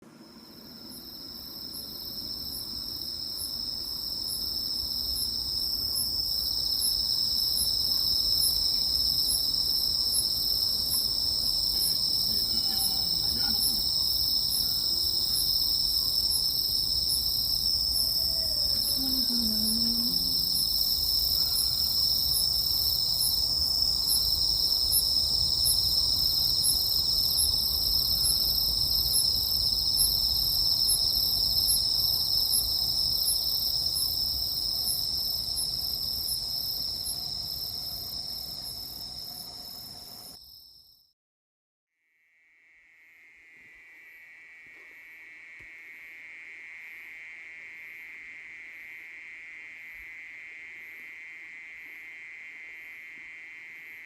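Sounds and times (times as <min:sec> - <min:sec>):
insects trilling: 0:00.1 - 0:40.8, 0:42.4 - 0:54.0
crickets chirping rhythmically: 0:00.1 - 0:41.0.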